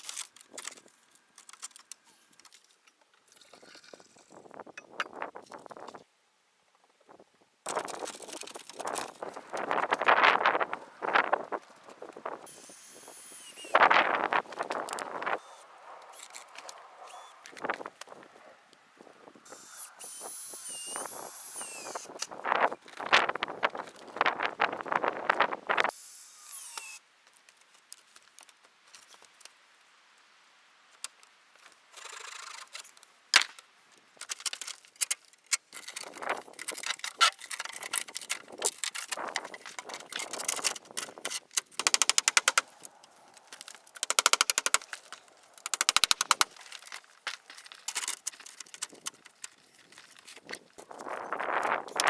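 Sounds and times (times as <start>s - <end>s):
sped-up knocks of woodworking: 41.8s - 42.7s.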